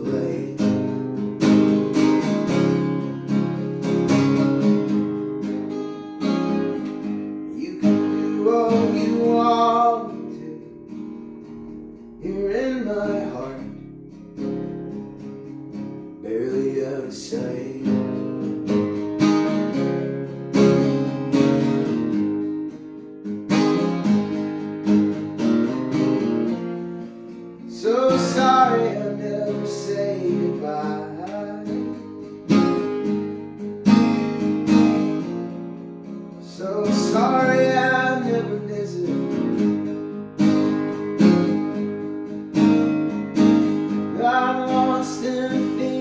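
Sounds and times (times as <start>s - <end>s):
person singing: 0.0s - 0.9s, 7.6s - 10.7s, 12.2s - 13.8s, 16.2s - 18.2s, 27.7s - 32.2s, 36.4s - 39.6s, 44.1s - 46.0s
acoustic guitar strumming: 0.0s - 46.0s.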